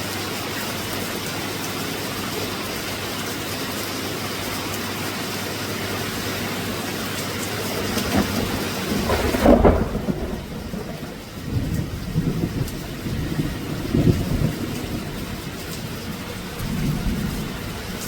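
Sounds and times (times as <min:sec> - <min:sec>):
steady rain: 0:00.0 - 0:18.0
thunder rolling: 0:07.6 - 0:18.0.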